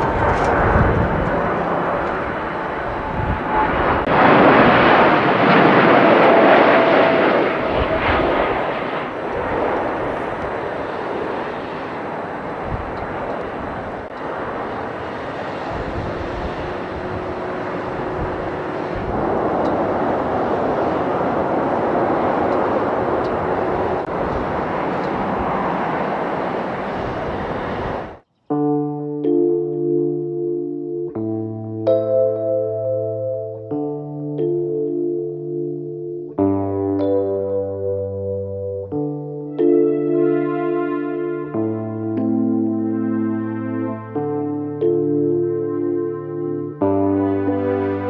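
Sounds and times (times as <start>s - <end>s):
jet engines running: 0.0s - 28.2s.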